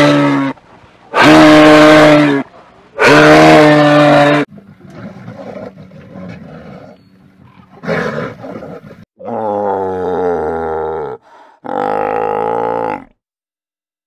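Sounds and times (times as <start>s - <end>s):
rough breathy animal sounds: 9.2s - 13.1s.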